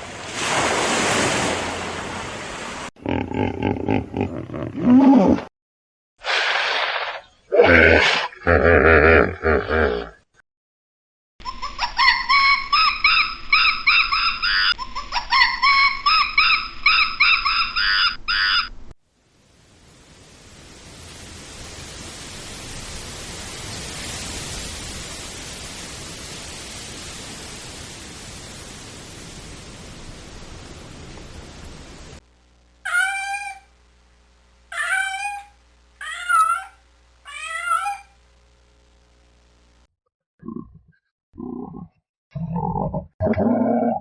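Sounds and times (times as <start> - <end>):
steady hiss: 19.1 - 32.9
rapid high-pitched animal calls: 32.9 - 33.7, 34.7 - 38.2.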